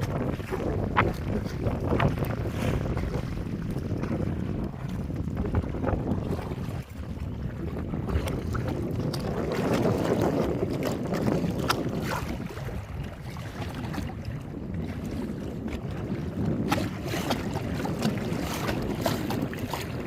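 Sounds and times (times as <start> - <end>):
water splashing and sloshing: 0.0 - 20.0
wind buffeting microphone: 0.0 - 20.0.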